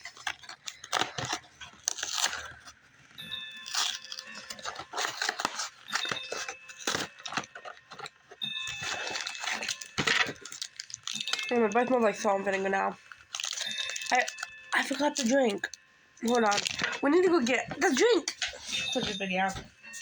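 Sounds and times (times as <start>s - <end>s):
plastic wrapper crinkling and tearing: 0.0s - 18.6s.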